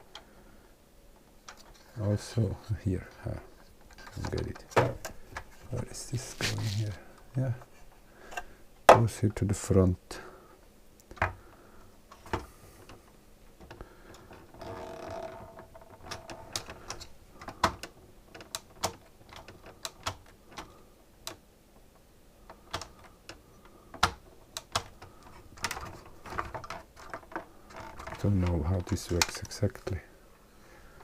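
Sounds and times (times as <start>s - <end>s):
plastic parts clicking and tapping: 1.1s - 1.9s, 3.1s - 5.6s, 11.0s - 11.4s, 12.1s - 30.0s
scraping rub: 5.5s - 7.0s.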